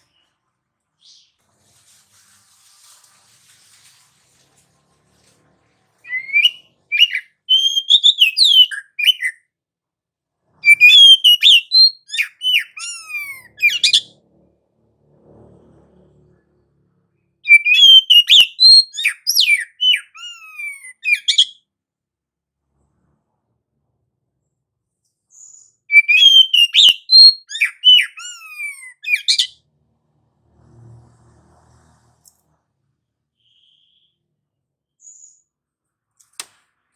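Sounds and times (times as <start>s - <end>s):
bird singing whistled notes: 6.0s - 9.4s, 10.6s - 14.1s, 17.5s - 21.6s, 25.3s - 29.6s, 33.4s - 34.3s.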